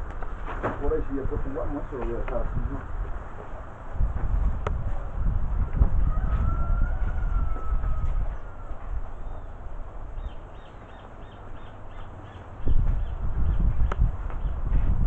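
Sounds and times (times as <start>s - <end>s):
wind rumbling on microphone: 0.0s - 15.0s
bird calling: 8.3s - 9.6s, 10.2s - 13.7s.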